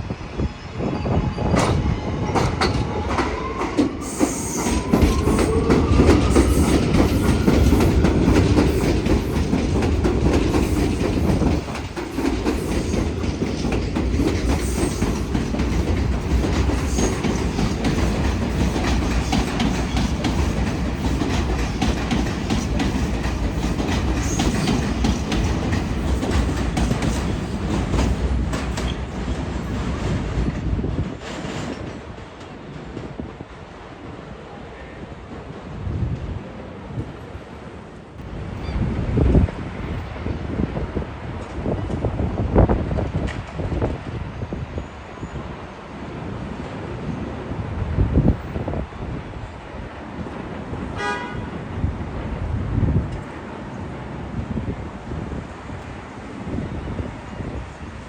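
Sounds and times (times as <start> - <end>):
subway train traction motors whining: 0.0 - 31.1
train rumble: 0.0 - 58.0.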